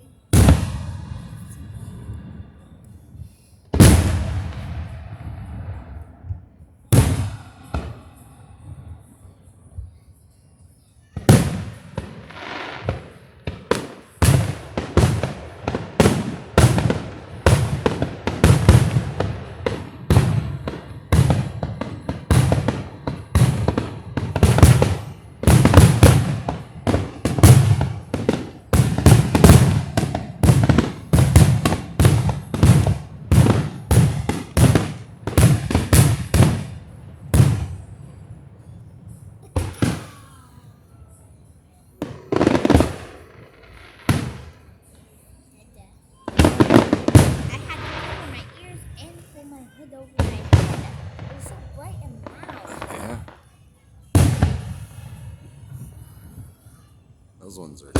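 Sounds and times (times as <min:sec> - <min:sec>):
fireworks shells bursting: 0:46.3 - 0:49.4.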